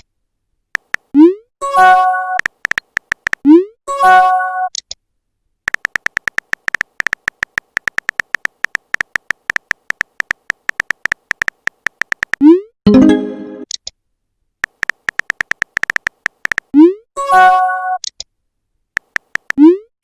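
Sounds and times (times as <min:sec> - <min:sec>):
smartphone keyboard typing clicks: 0:00.8 - 0:01.1, 0:02.4 - 0:03.5, 0:05.7 - 0:12.4, 0:14.6 - 0:16.8, 0:19.0 - 0:19.6
pitched notification chime: 0:12.9 - 0:13.6.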